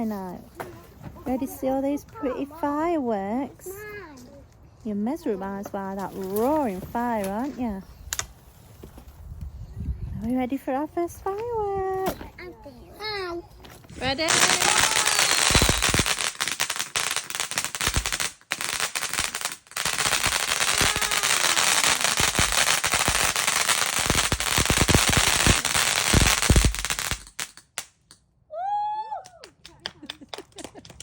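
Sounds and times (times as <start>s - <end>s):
firework crackling pops and bangs: 13.9s - 28.2s.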